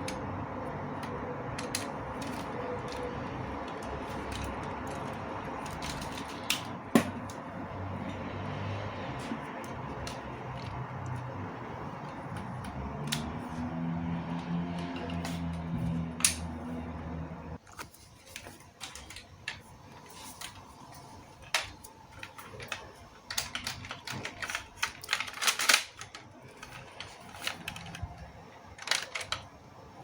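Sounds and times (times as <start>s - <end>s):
plastic parts clicking: 0.0s - 7.4s, 12.0s - 13.6s, 14.3s - 16.6s, 17.6s - 20.7s, 21.4s - 29.5s.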